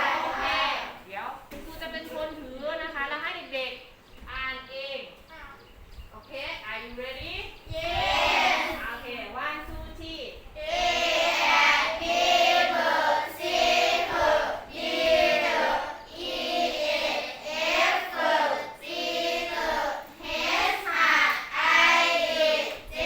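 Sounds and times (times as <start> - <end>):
children chanting in unison: 0.0 - 1.0, 7.7 - 8.8, 10.6 - 23.0.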